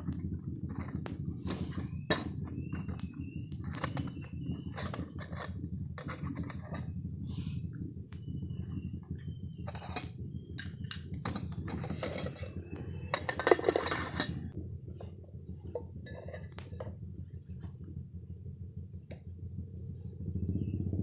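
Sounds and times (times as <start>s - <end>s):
cookware and utensils clinking: 11.2s - 12.5s, 13.1s - 14.4s.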